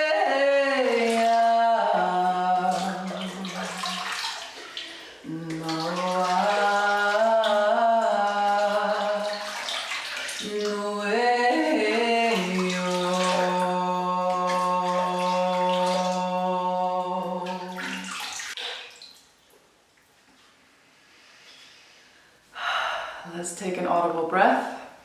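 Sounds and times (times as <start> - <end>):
woman singing long held tones: 0.0 - 4.1, 5.1 - 9.6, 10.4 - 18.2
running tap water: 0.7 - 19.5.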